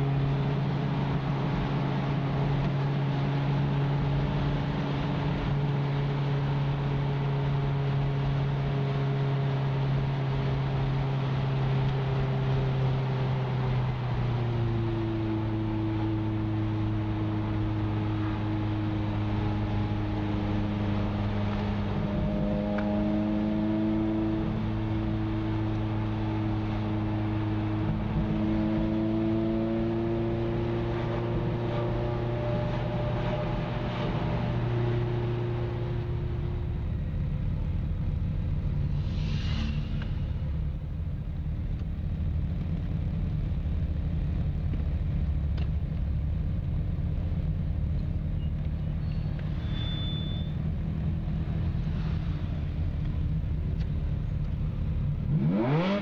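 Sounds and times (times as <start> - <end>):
car engine cruising: 0.0 - 56.0
engines idling in a line: 36.3 - 55.2.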